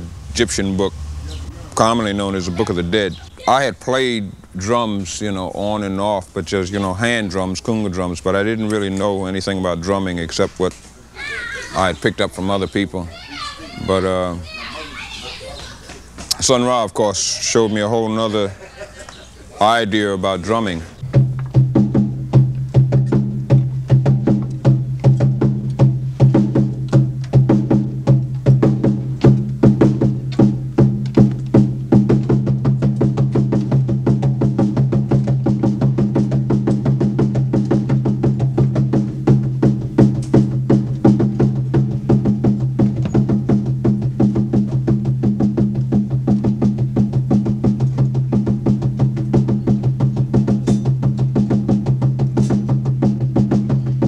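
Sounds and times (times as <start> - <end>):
wooden hand drum rhythm: 21.0 - 54.0.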